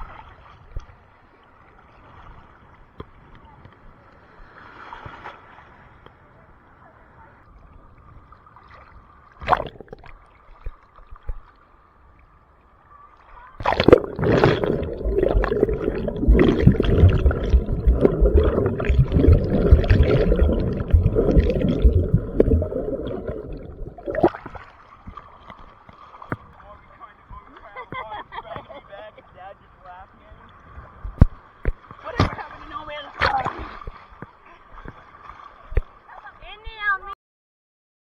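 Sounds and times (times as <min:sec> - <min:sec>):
ocean waves washing in: 0:13.6 - 0:24.3.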